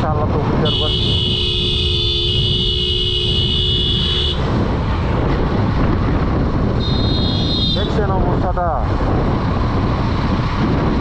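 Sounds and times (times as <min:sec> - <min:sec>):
vehicle horn blast: 0:00.6 - 0:04.5, 0:06.8 - 0:07.9.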